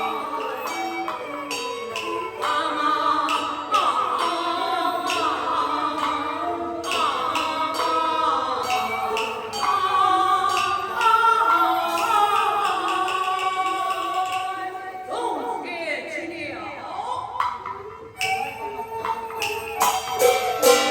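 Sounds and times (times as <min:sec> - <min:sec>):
sharp percussion strokes: 0:00.0 - 0:15.0, 0:17.4 - 0:20.9.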